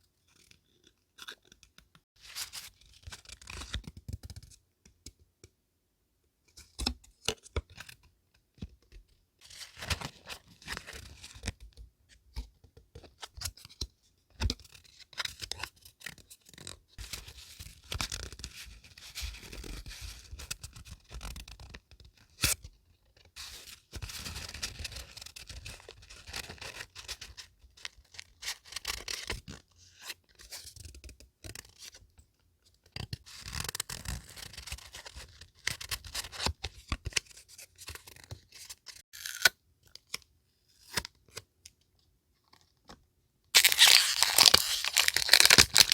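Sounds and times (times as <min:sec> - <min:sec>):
paper rustling: 0:43.6 - 0:45.9.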